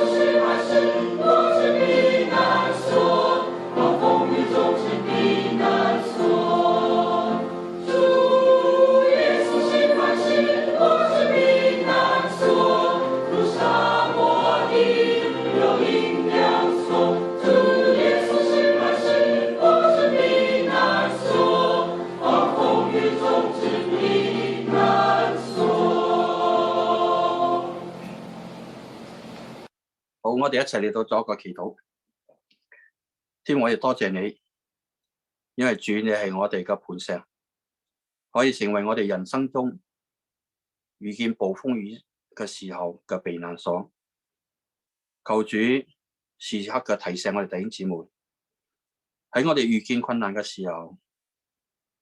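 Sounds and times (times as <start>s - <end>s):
choir singing a hymn: 0.0s - 29.0s.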